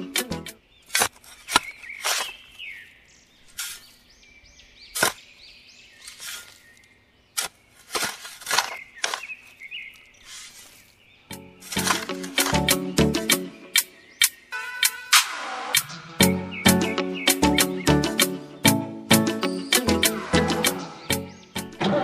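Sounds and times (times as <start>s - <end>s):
trowel digging into damp sand: 0.9s - 2.6s, 3.4s - 4.0s, 4.9s - 5.3s, 6.0s - 10.9s, 11.6s - 12.9s.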